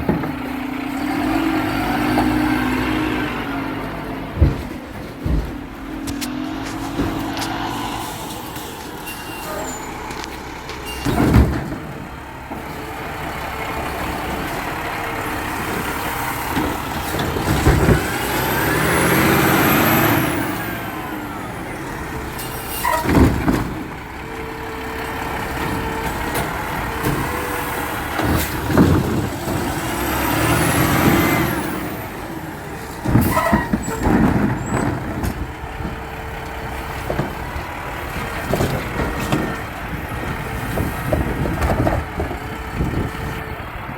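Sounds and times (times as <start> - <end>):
garbage truck engine running: 0.0 - 43.9
loud clanks and bangs: 0.0 - 43.9.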